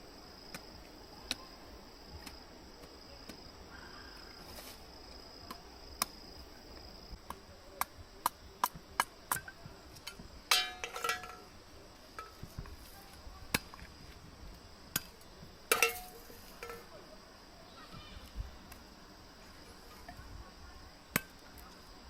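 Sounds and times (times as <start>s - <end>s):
high insect trill: 0.0s - 22.0s
ringing metallic clinks: 10.5s - 11.5s, 15.7s - 16.9s.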